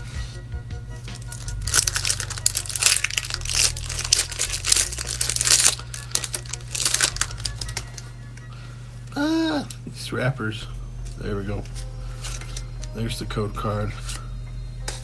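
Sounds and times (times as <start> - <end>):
foil wrapper crinkling and tearing: 1.2 - 8.1.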